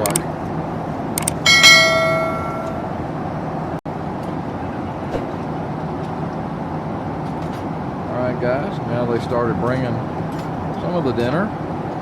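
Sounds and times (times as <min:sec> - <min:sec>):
airplane cabin rumble: 0:00.0 - 0:12.0
short bright ringing tone: 0:01.5 - 0:03.0.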